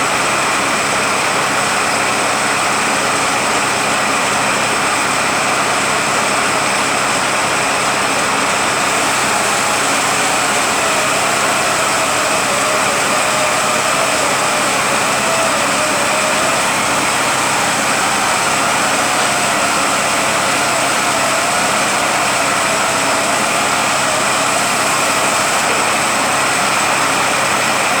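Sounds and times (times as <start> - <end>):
gear whine: 3.7 - 28.0
truck transmission whirring: 7.7 - 28.0.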